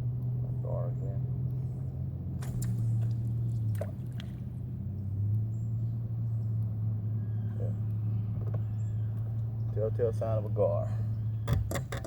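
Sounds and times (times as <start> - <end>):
steady low hum: 0.0 - 12.0
water dripping and splashing: 2.4 - 5.4.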